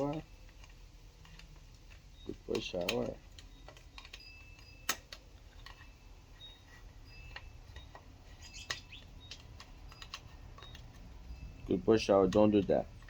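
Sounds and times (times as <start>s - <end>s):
light clicks and ticks: 0.0s - 5.9s, 7.3s - 13.0s
faint high chirps: 5.7s - 11.9s.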